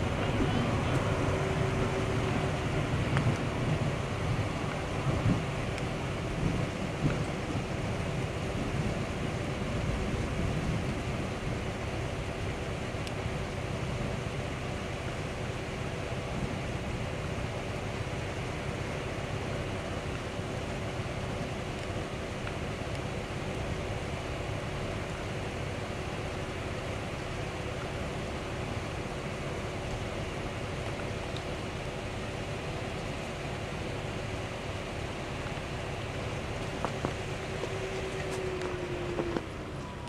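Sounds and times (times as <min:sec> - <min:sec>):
wind buffeting microphone: 0:00.0 - 0:14.2
faint steady hum: 0:00.0 - 0:40.0.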